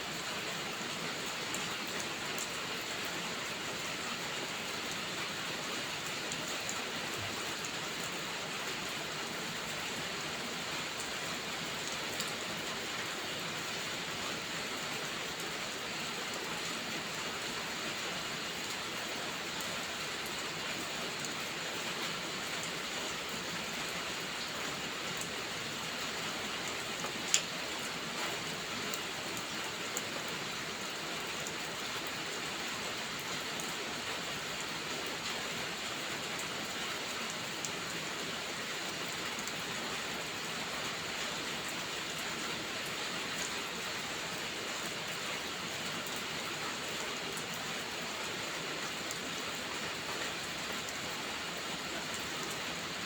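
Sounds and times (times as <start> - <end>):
rainfall hiss: 0.0 - 53.0
faint ticks: 27.0 - 27.5.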